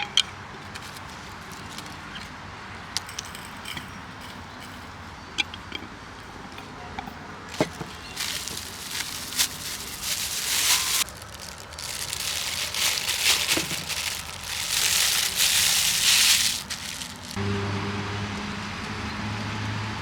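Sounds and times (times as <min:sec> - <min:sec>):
crunching and crackling: 0:00.6 - 0:02.1, 0:07.5 - 0:17.4.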